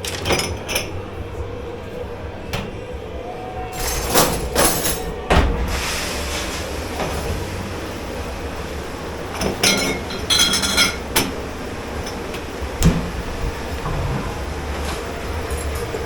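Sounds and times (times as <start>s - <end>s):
kitchen machinery humming: 0.0s - 16.0s
dishes clinking: 9.3s - 16.0s
sharp clatter of dishes: 9.4s - 11.3s.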